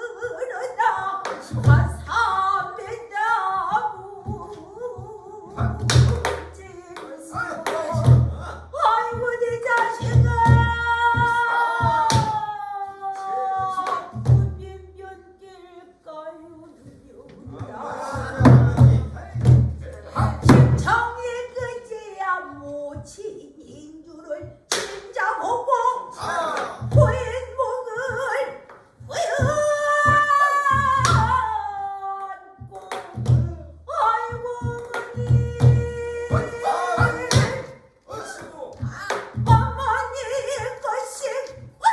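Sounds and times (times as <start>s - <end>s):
solo voice singing: 0.0s - 19.2s, 25.2s - 41.9s
drum thumps: 3.6s - 12.5s, 17.3s - 21.8s, 26.8s - 31.7s, 32.6s - 37.8s, 38.4s - 40.8s
deep barrel drum strokes: 17.4s - 21.2s.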